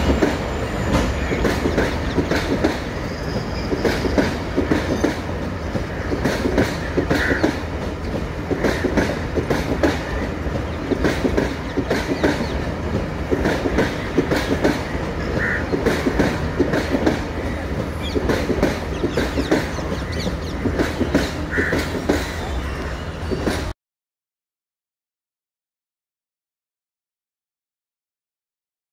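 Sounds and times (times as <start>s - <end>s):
high wheel squeaks: 0.0s - 5.2s.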